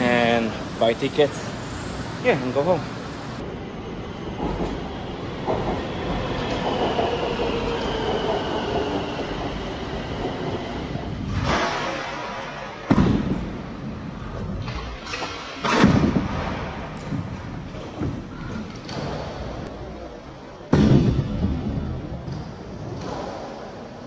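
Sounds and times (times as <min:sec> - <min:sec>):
train rumbling: 0:00.0 - 0:12.5.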